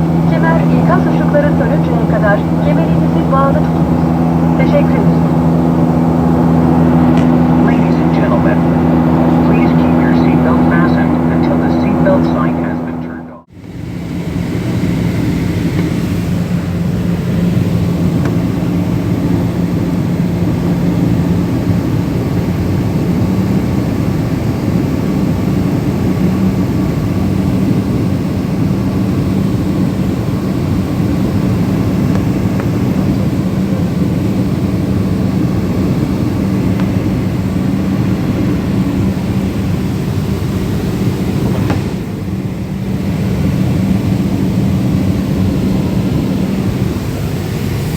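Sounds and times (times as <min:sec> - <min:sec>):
low hum: 0:00.0 - 0:21.5
aircraft cabin drone: 0:00.0 - 0:47.9.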